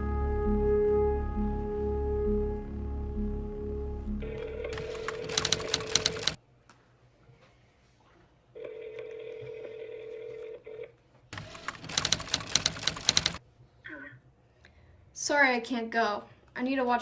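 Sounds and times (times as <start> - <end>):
electronic phone tone: 4.1 - 6.4, 8.6 - 10.9
rapid clicking: 4.7 - 6.4, 11.4 - 13.4.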